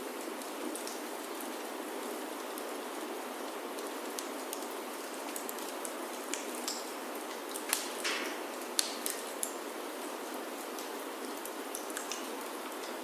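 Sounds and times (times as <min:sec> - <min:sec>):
rain on a wooden roof: 0:00.0 - 0:13.0
wood fire crackling: 0:00.1 - 0:13.0.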